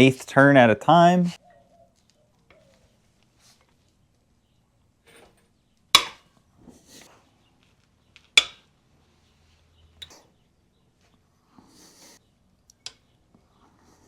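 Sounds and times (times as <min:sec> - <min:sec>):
sharp metallic cracks: 0:08.3 - 0:08.7.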